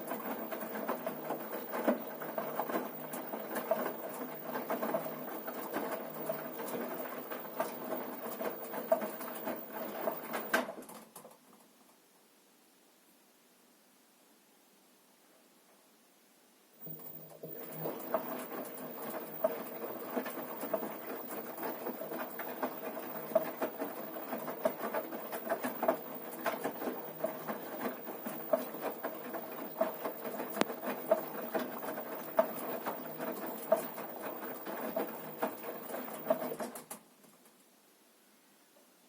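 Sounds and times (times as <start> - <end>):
washing machine motor hum: 0.0 - 10.6, 16.8 - 36.8.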